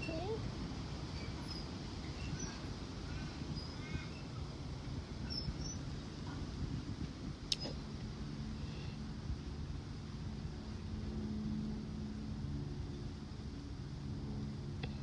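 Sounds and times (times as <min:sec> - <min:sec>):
faint birds chirping: 0:01.2 - 0:04.6.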